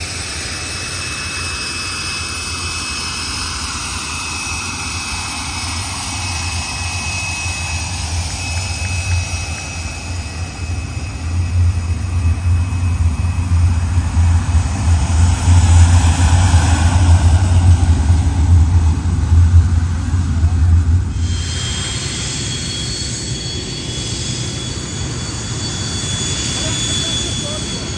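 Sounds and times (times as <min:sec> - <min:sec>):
jet engine whine: 0:00.0 - 0:27.9
heavy low rumble: 0:09.1 - 0:22.4.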